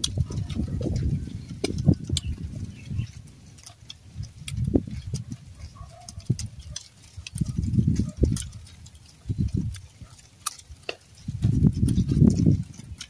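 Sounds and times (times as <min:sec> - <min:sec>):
chewing and crunching carrot: 0:00.0 - 0:13.0.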